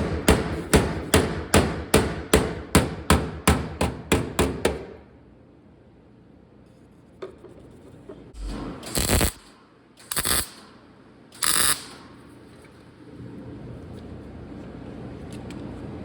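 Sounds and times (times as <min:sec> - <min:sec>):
welding tacks on sheet steel: 0:08.4 - 0:12.2.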